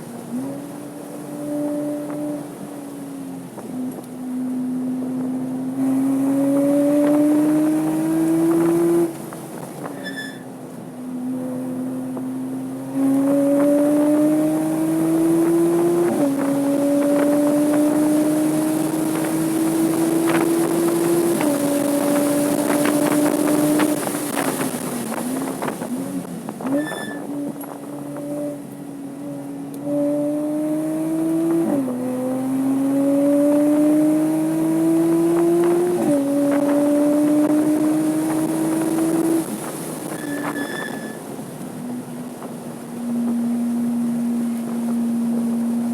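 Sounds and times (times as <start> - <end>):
car engine accelerating: 0.0 - 10.0, 10.6 - 45.9.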